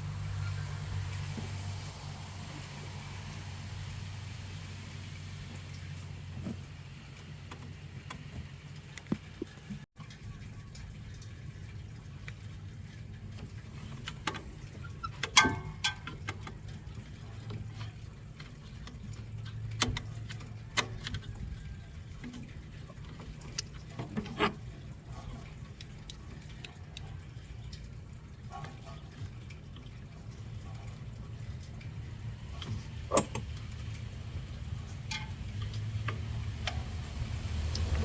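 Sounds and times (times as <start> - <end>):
hand tools clicking on metal: 32.6 - 33.7.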